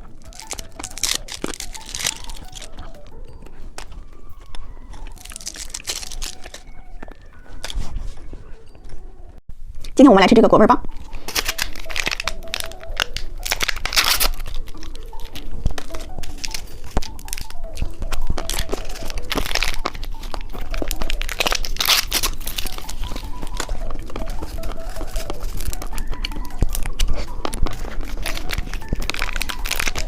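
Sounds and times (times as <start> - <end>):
plastic wrapper crinkling: 0.0 - 10.0, 10.8 - 30.0.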